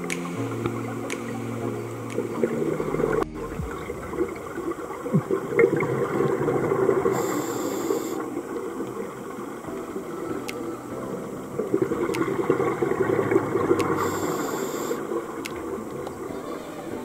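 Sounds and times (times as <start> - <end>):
underwater bubbles: 0.0 - 17.0
diver breathing through regulator: 7.1 - 8.2
short hiss: 14.0 - 15.0.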